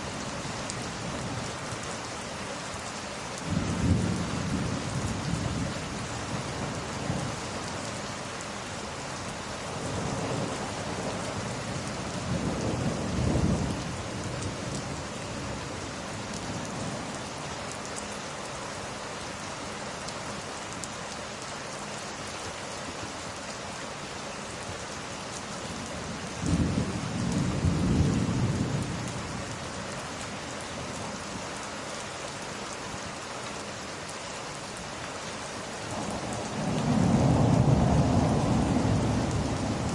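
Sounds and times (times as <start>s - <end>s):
rain falling: 0.0s - 39.9s
low rumbles of thunder: 3.4s - 7.4s, 9.8s - 15.1s, 26.0s - 29.6s, 35.9s - 39.9s.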